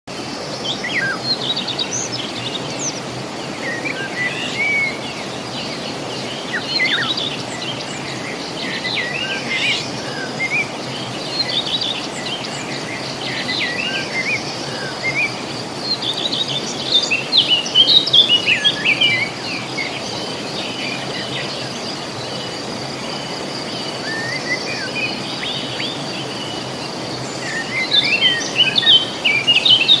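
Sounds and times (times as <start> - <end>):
songbirds chirping and trilling: 0.1 - 30.0.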